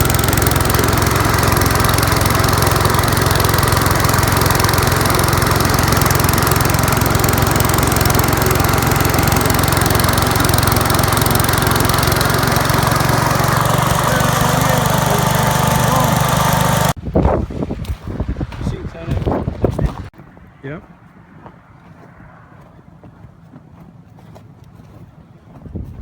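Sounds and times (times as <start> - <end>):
garden tractor engine running: 0.0 - 17.0.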